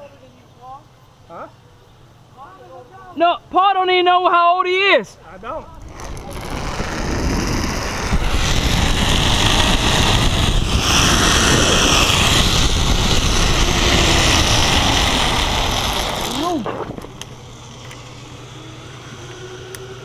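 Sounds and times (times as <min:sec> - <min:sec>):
wind on microphone: 0:05.7 - 0:17.5
zipline trolley whirring on cable: 0:05.8 - 0:20.0.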